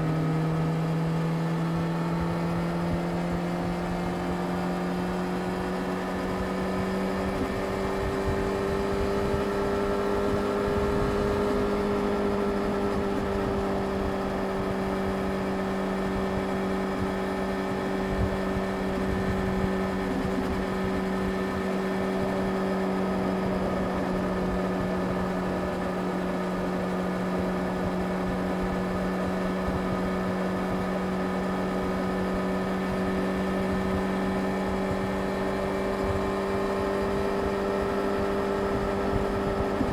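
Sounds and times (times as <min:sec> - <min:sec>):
motorcycle engine drone: 0:00.0 - 0:39.9.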